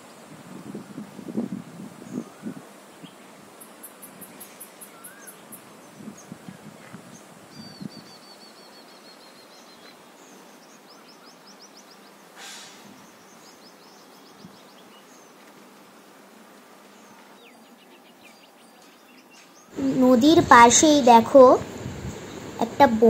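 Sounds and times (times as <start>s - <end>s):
quiet outdoor hiss: 0.0s - 23.0s
small bird chirping: 2.1s - 6.4s, 7.1s - 12.1s.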